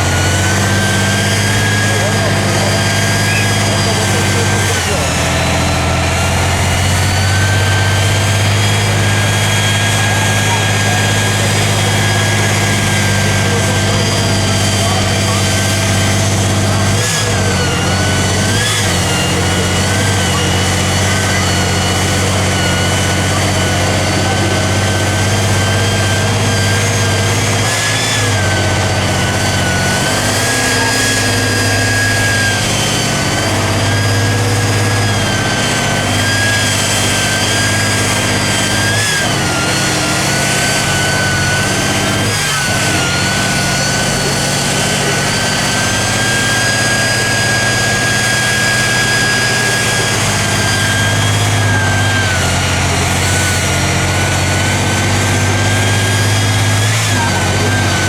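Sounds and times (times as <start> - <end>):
high engine whine: 0.0 - 58.0
truck diesel engine droning: 0.0 - 58.0.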